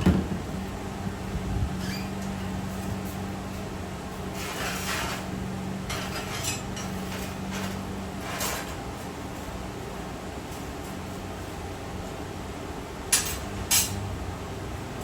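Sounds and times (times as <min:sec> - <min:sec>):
metal clattering and scraping: 0:04.3 - 0:08.9.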